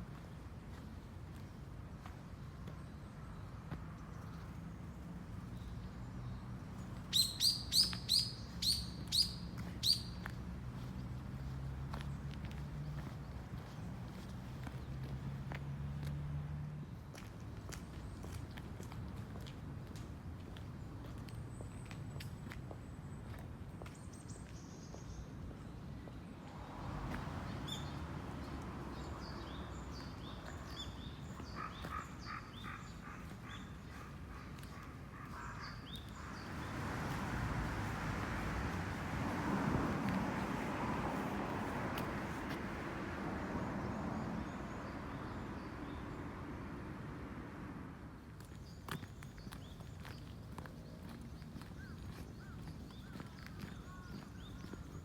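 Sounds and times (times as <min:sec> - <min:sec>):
small birds chirping: 0:03.6 - 0:12.1, 0:27.5 - 0:38.5, 0:48.4 - 0:55.0
lower bird calls: 0:07.1 - 0:10.2.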